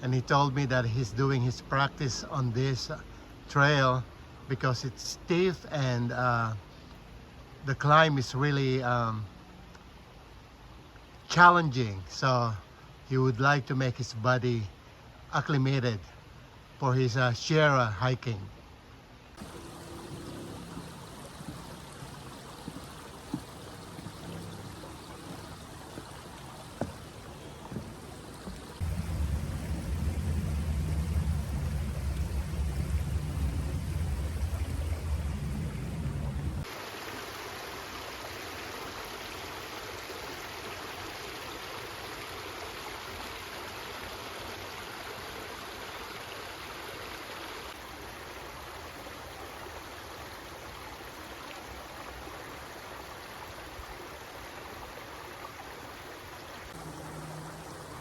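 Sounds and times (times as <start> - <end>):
creek water running: 0.0 - 58.0
loud low rumble: 28.8 - 36.6.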